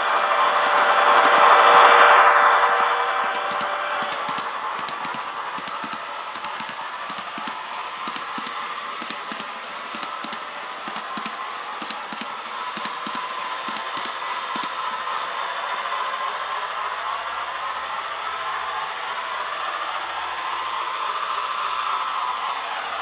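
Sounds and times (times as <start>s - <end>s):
model locomotive hiss and whine: 0.0s - 23.0s
small clicks: 0.6s - 1.6s, 2.5s - 14.8s.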